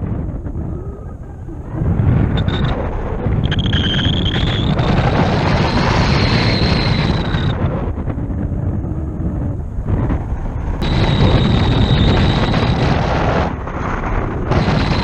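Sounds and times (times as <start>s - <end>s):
wind buffeting microphone: 0.0s - 15.0s
high whistle of rushing air: 2.2s - 7.8s, 10.8s - 15.0s.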